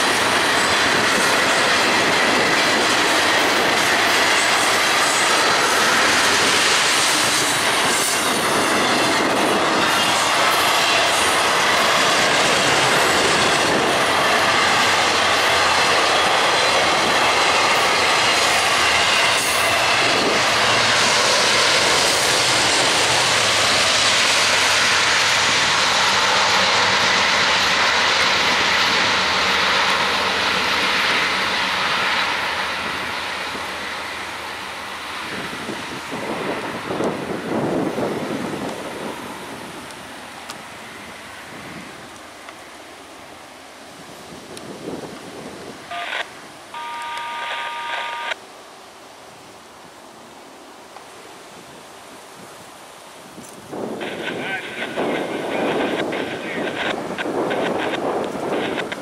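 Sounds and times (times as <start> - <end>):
train wheels rumbling on rails: 0.0 - 48.4, 51.0 - 59.0
high wheel squeal: 46.8 - 48.4.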